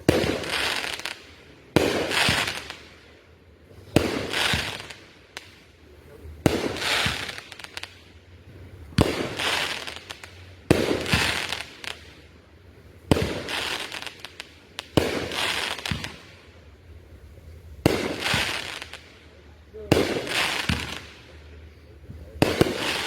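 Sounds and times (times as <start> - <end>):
fireworks bangs: 0.0 - 3.1, 3.7 - 12.2, 13.0 - 16.5, 17.8 - 23.0
fireworks crackling: 0.0 - 23.0.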